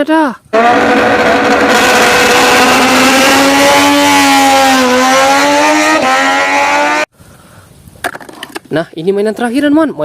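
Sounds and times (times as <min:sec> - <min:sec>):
racing motorcycle engine revving: 0:00.5 - 0:07.1.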